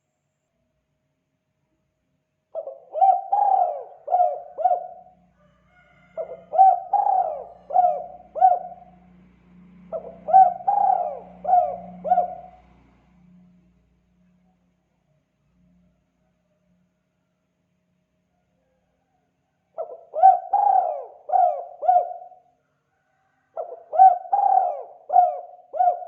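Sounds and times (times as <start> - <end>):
dove cooing: 2.6 - 5.2, 6.1 - 9.0, 9.9 - 12.8, 19.8 - 22.5, 23.5 - 26.0.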